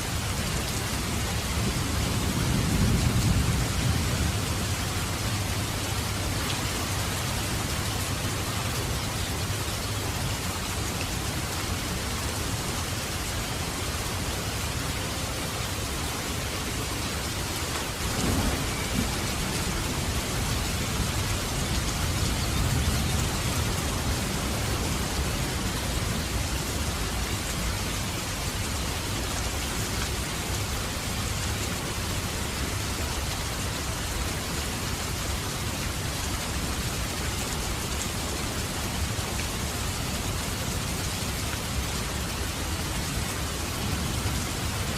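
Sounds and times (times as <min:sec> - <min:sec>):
heavy rain pattering: 0:00.0 - 0:44.9
low thunder rumble: 0:01.5 - 0:06.2, 0:17.9 - 0:28.4.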